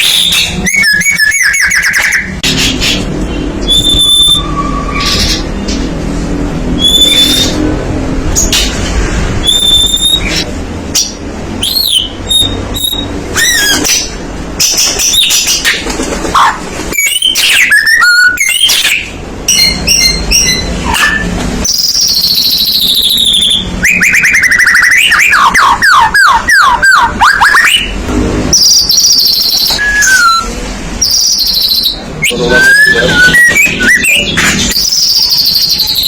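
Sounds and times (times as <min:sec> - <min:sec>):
bird singing varied whistles: 0:00.0 - 0:02.3, 0:03.6 - 0:05.4, 0:06.8 - 0:07.6, 0:09.4 - 0:10.5, 0:11.6 - 0:13.9, 0:17.0 - 0:28.0, 0:28.6 - 0:36.0.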